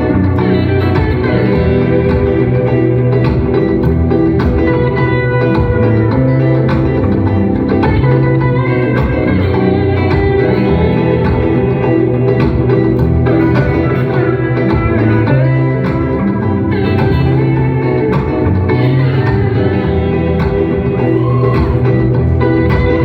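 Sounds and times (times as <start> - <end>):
live guitar duo playing: 0.0 - 23.0.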